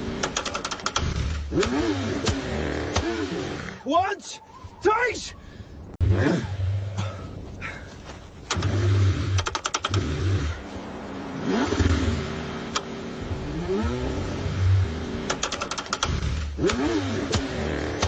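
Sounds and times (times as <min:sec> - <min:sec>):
car starter cranking engine: 0:00.1 - 0:03.1, 0:08.4 - 0:10.6, 0:15.2 - 0:17.5
rapid clicking: 0:00.2 - 0:02.4, 0:08.5 - 0:10.1, 0:15.2 - 0:17.4
rising and falling whines: 0:08.5 - 0:15.4.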